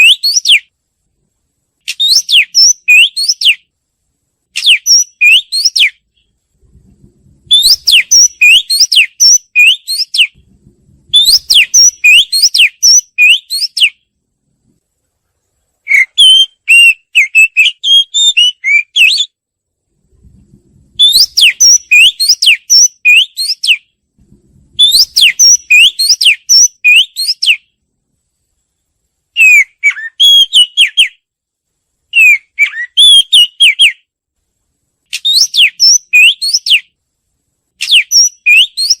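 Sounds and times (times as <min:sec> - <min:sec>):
bird singing whistled notes: 0:00.0 - 0:00.7, 0:01.9 - 0:03.7, 0:04.6 - 0:06.3, 0:07.5 - 0:10.4, 0:11.1 - 0:14.0, 0:15.8 - 0:19.4, 0:21.0 - 0:23.9, 0:24.8 - 0:27.8, 0:29.4 - 0:31.2, 0:32.1 - 0:34.1, 0:35.1 - 0:37.0, 0:37.8 - 0:39.0.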